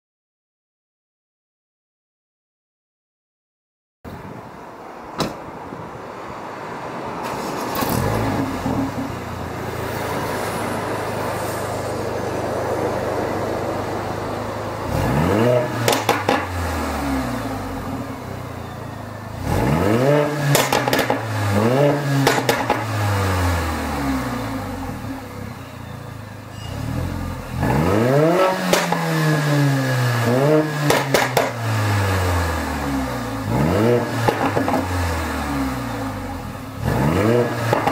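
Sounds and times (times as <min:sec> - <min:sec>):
exhaust cracks: 0:07.2 - 0:11.2, 0:13.5 - 0:18.0, 0:19.3 - 0:25.1, 0:26.7 - 0:37.9
car engine accelerating through gears: 0:07.2 - 0:25.9, 0:26.5 - 0:37.9.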